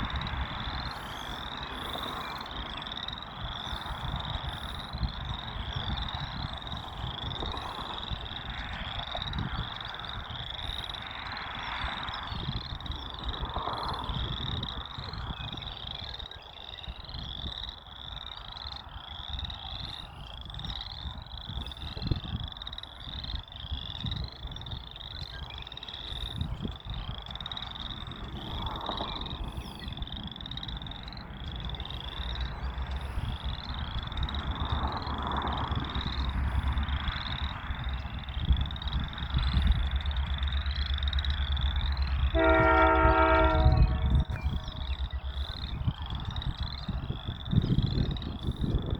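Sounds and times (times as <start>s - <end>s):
frogs calling: 0.0s - 48.9s
low rumble: 26.4s - 48.9s.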